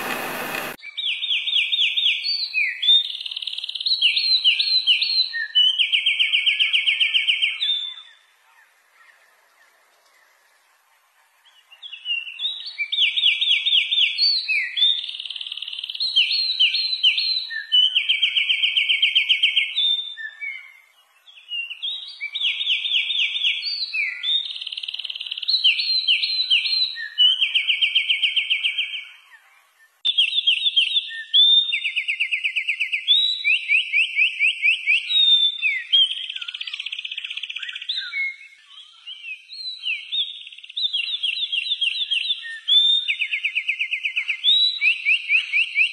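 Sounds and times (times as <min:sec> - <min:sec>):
songbird trilling and chirping: 0:33.3 - 0:45.9.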